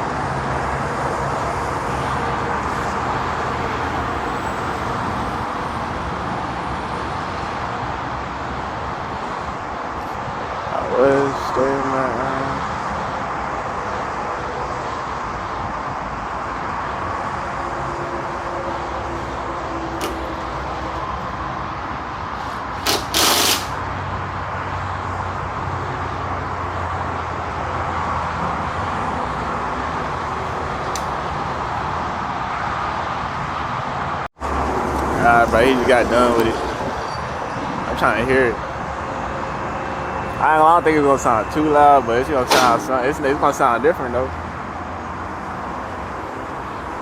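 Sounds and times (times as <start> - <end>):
street and vehicle background noise: 0.0 - 47.0
short loud hiss: 22.4 - 23.8.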